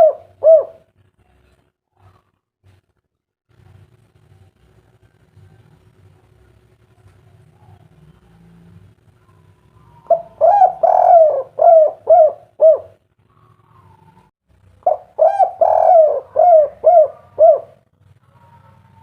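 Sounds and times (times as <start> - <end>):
dove cooing: 0.0 - 0.9, 9.2 - 19.0.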